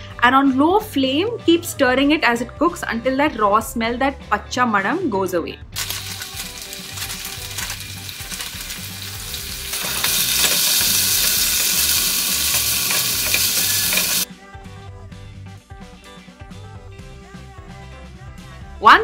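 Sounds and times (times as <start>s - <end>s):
faint background music: 0.0s - 19.0s
aromatics sizzling in hot oil: 5.8s - 14.3s.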